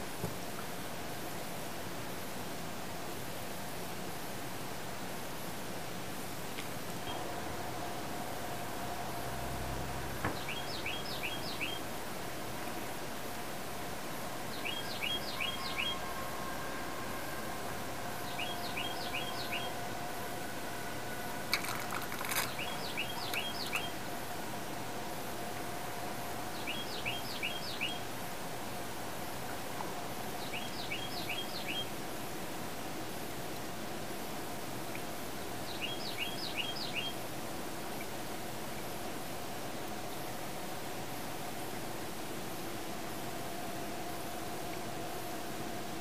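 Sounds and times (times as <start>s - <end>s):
steady background hum: 0.0s - 46.0s
bird chirping: 10.4s - 11.8s, 14.5s - 16.1s, 18.2s - 19.8s, 22.3s - 24.0s, 26.5s - 28.0s, 30.4s - 31.9s, 35.7s - 37.2s.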